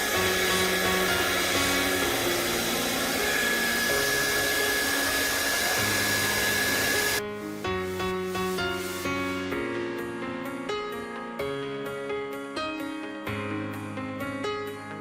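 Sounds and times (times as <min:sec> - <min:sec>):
hot-air blower running: 0:00.0 - 0:07.2
background music: 0:00.0 - 0:15.0.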